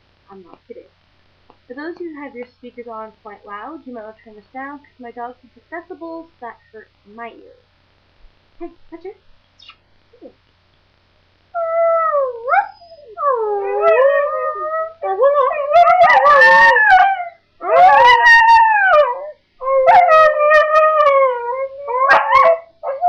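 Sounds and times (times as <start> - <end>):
puppy howling: 11.6 - 23.0.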